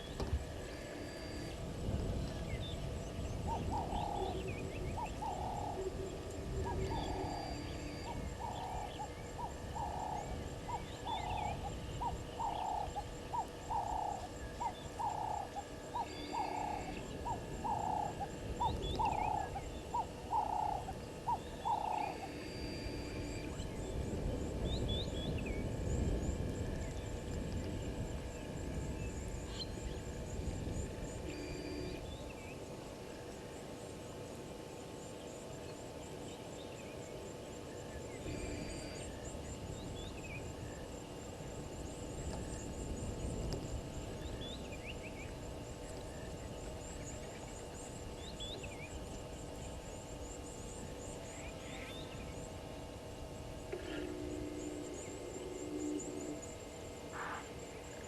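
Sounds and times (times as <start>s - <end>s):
bird chirps: 2.2s - 24.0s
steady high thin tone: 53.7s - 57.6s.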